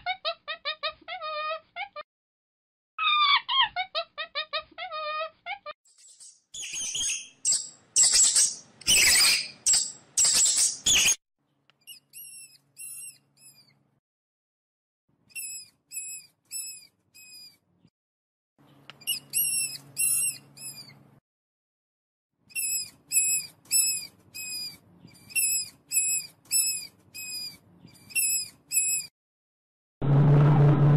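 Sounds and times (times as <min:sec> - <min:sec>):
guinea pigs squealing: 0:00.0 - 0:02.0, 0:03.0 - 0:11.2, 0:11.9 - 0:13.7, 0:15.3 - 0:17.6, 0:19.0 - 0:21.0, 0:22.5 - 0:29.1
guinea pig whistled wheeks: 0:03.0 - 0:11.2, 0:11.9 - 0:13.8, 0:15.3 - 0:17.6, 0:19.0 - 0:21.0, 0:22.5 - 0:29.1.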